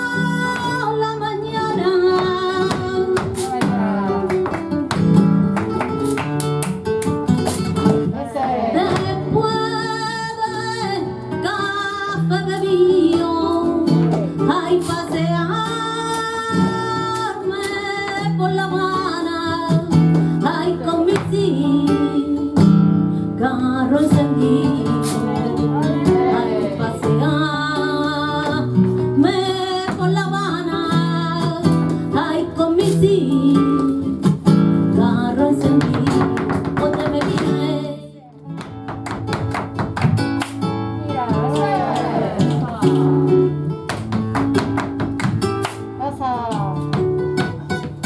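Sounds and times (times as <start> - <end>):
acoustic flamenco guitar: 0.0 - 48.0
person singing: 1.1 - 4.6, 8.0 - 22.6, 23.4 - 28.6, 41.0 - 43.5.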